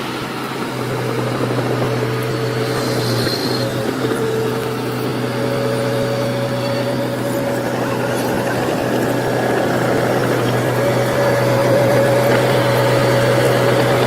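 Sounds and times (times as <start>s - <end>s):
heavy machine engine running: 0.0s - 14.0s
high engine whine: 0.0s - 14.0s.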